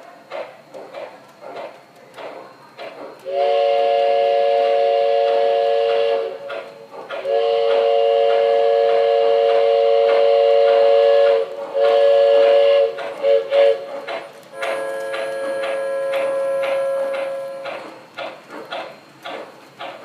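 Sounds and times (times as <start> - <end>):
model train whistle chord: 3.3 - 6.5, 7.3 - 13.8, 14.5 - 17.8.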